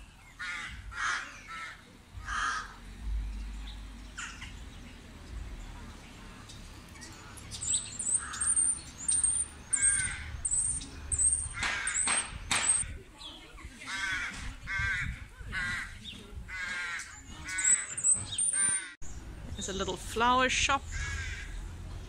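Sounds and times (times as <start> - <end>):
harsh bird calls: 7.0 - 13.0, 13.9 - 19.0.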